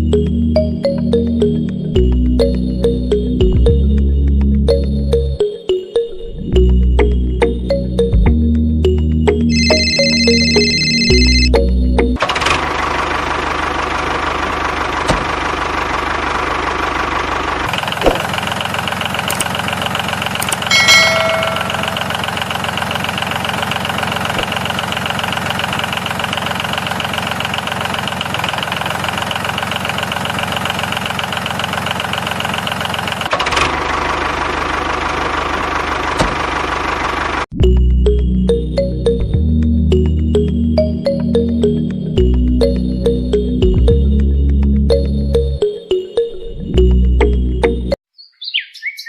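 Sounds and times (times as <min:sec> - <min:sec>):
engine running with rapid pulse: 0:08.2 - 0:48.0
short pitched tone: 0:09.5 - 0:11.6, 0:20.7 - 0:22.3.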